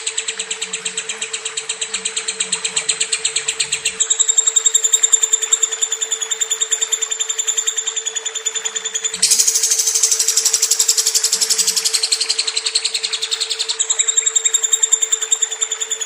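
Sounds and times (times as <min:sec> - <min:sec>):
lovebird chattering trill: 0:08.7 - 0:16.0.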